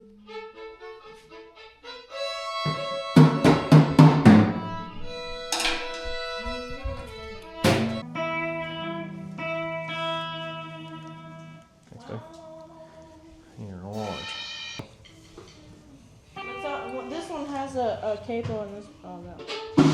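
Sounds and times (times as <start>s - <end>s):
guitar and fiddle music: 0.0s - 19.9s
loud drum hits: 3.2s - 5.0s, 7.6s - 8.0s.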